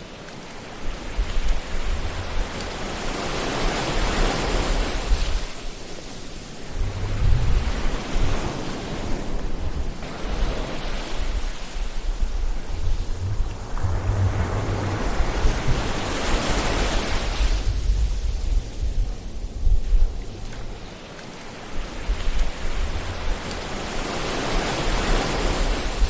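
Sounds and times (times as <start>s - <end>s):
ocean waves surging onto shore: 0.0s - 26.0s
low rumble: 6.6s - 8.3s, 11.3s - 21.0s.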